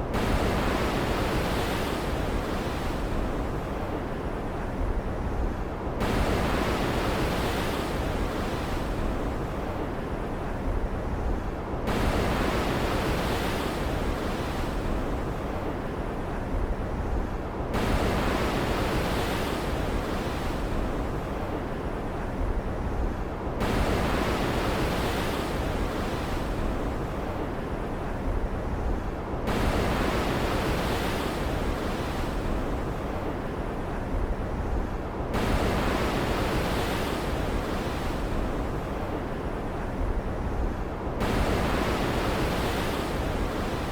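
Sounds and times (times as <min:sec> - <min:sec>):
stormy ocean surf: 0:00.1 - 0:43.9.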